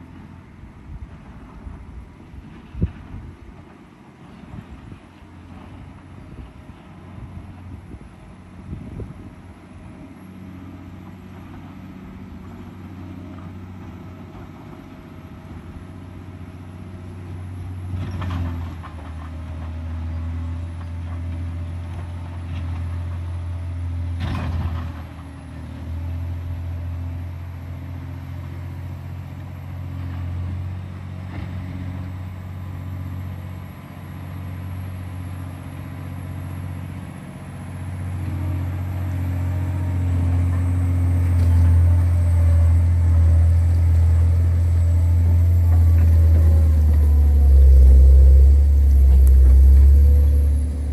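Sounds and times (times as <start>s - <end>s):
diesel engine running under load: 0.0s - 50.9s.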